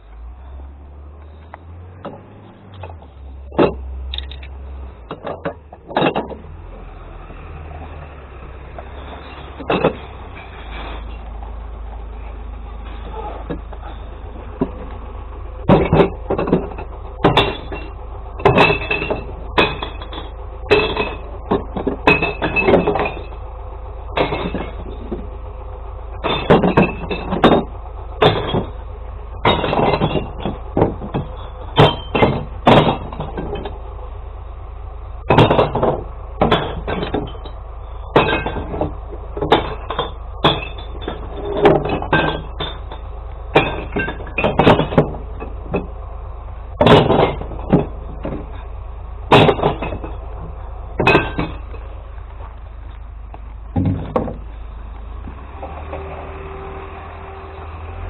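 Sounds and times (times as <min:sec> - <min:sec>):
glass bottles crashing and clinking: 0:09.3 - 0:10.5, 0:15.7 - 0:23.4, 0:24.2 - 0:25.2, 0:26.2 - 0:28.8, 0:29.4 - 0:33.7, 0:35.3 - 0:45.9, 0:46.8 - 0:48.6, 0:49.3 - 0:50.2, 0:51.0 - 0:51.8.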